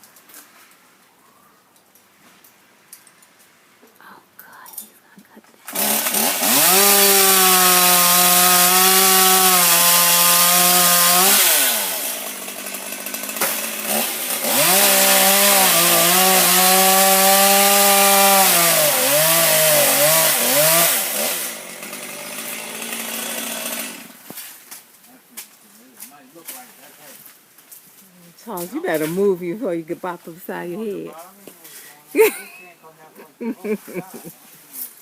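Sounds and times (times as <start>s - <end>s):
chainsaw cutting and idling: 5.6s - 24.4s.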